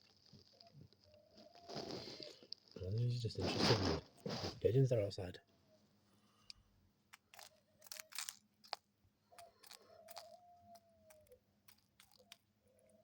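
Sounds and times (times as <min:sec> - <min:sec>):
dove pecking at seed: 0:00.0 - 0:02.8, 0:06.4 - 0:13.0.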